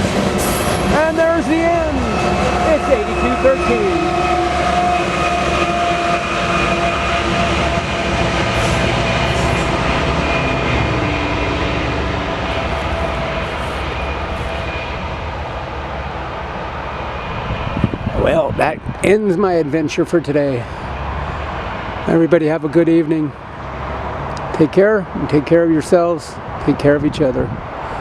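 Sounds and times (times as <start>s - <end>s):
train wheels rolling on rails: 0.0s - 18.1s
thin high tones: 8.5s - 15.4s.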